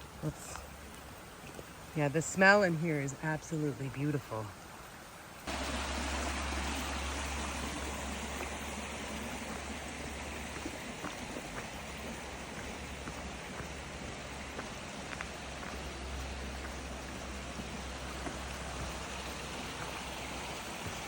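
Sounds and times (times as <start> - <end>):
creek water rushing: 0.0 - 21.0.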